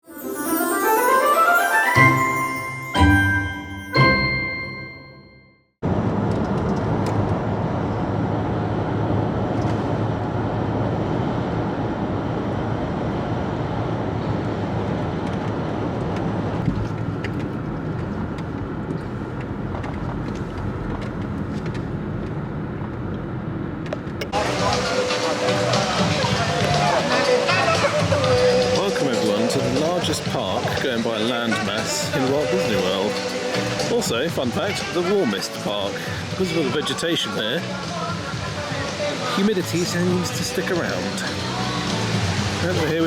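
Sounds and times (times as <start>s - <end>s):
jingle chime: 0.0s - 5.7s.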